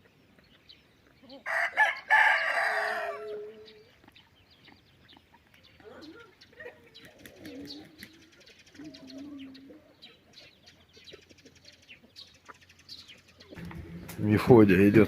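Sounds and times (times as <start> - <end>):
rooster crowing: 1.4 - 3.7
faint low calls: 13.6 - 15.0.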